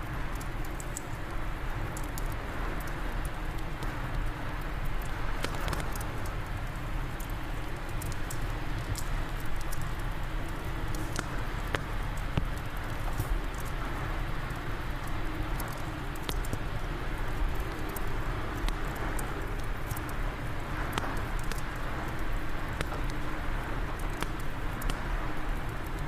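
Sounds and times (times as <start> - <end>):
fire crackling and popping: 0.0 - 26.0.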